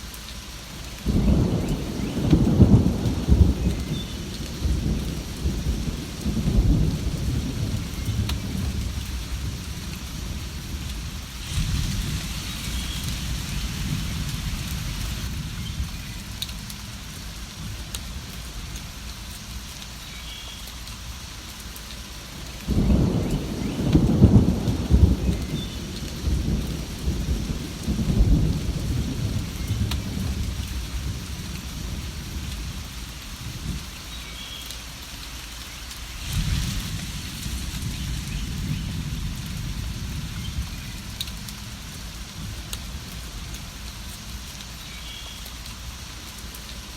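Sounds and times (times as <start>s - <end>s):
steady rain: 0.0s - 46.9s
thunder rumbling: 1.0s - 18.7s, 22.6s - 33.8s, 36.1s - 43.8s.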